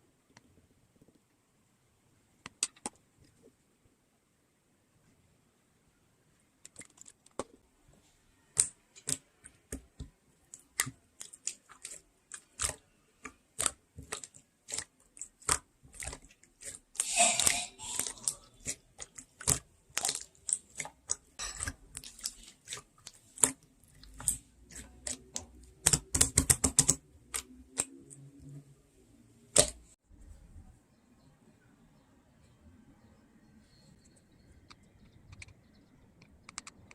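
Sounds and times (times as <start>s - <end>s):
slime sticky clicks and pops: 29.5s - 29.8s.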